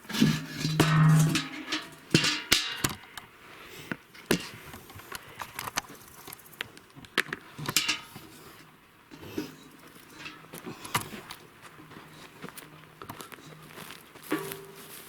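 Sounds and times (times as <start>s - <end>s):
footsteps on forest ground: 9.9s - 15.0s.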